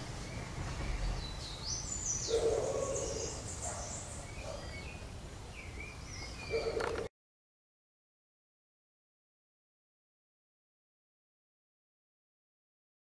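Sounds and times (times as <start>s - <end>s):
birds chirping and whistling: 0.0s - 7.1s.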